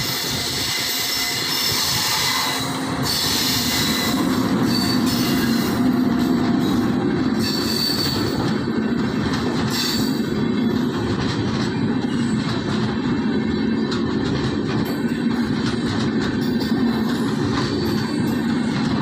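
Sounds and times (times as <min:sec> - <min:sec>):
high wheel squeal: 0:00.0 - 0:06.0, 0:06.6 - 0:08.5, 0:09.7 - 0:10.3
train wheels rumbling on rails: 0:00.0 - 0:19.0.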